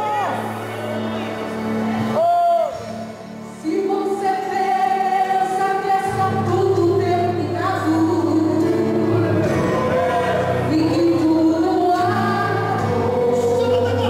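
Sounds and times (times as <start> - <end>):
group singing gospel music: 3.5 - 14.0.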